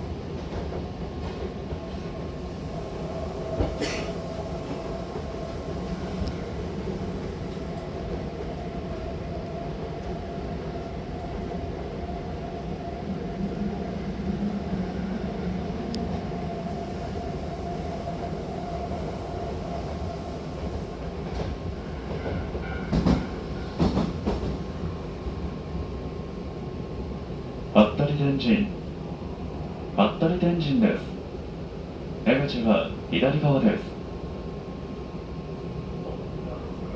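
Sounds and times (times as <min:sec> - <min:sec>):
train whine: 0:00.0 - 0:25.3
train wheels rumbling on track: 0:00.0 - 0:30.3.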